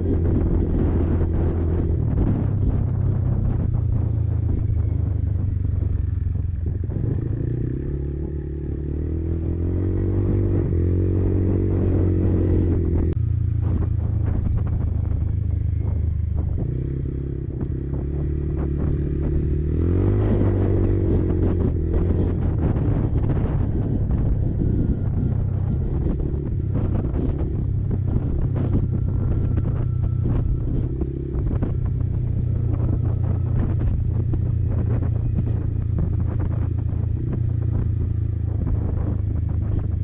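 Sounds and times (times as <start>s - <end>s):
quad bike engine revving: 6.8s - 13.2s, 16.4s - 37.9s.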